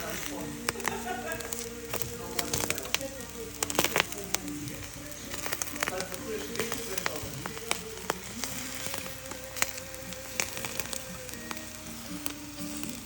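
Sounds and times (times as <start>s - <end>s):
background music with held notes: 0.0s - 13.0s
eggs sizzling in a frying pan: 0.0s - 13.0s.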